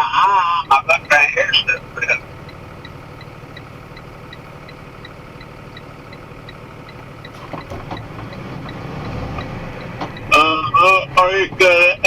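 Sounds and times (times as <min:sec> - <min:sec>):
truck engine idling: 0:00.0 - 0:12.0
even ticking: 0:00.6 - 0:12.0.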